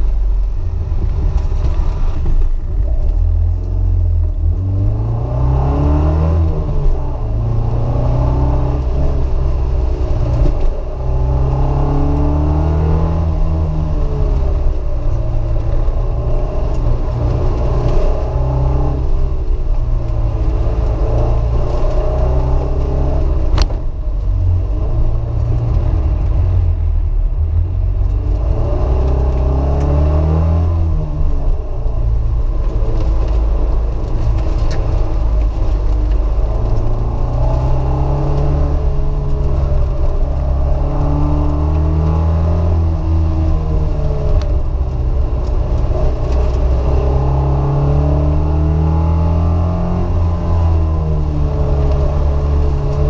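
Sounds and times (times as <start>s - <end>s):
car engine accelerating and shifting: 0.0s - 53.0s.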